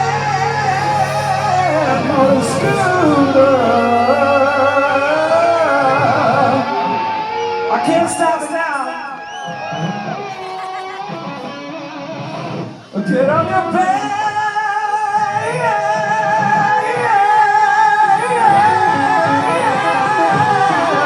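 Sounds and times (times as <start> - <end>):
bending wavering lead notes: 0.0 - 7.8
live rock band playing: 0.0 - 14.6, 15.4 - 21.0.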